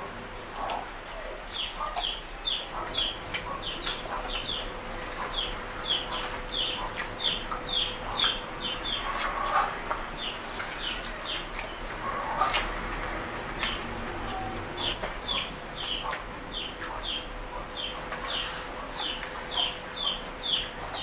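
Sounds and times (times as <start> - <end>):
bird chirping: 1.5 - 9.6, 13.6 - 21.0
close-up chewing: 1.5 - 21.0.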